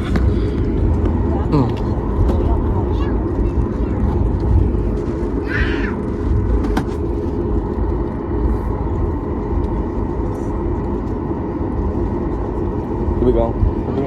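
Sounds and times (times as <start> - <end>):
airplane engines rumbling in cabin: 0.0 - 14.0.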